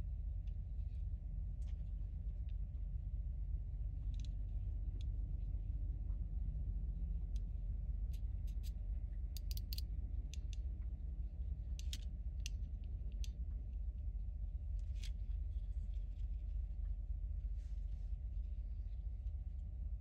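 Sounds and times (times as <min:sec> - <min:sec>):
steady low hum: 0:00.0 - 0:20.0
plastic toy parts clicking: 0:09.4 - 0:09.8.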